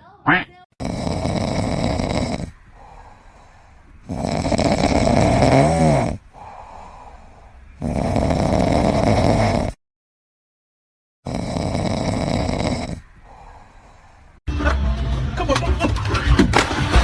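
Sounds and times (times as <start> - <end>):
animal snoring: 0.8 - 9.8, 11.2 - 14.2
quiet breaths: 0.8 - 9.8, 11.3 - 14.4.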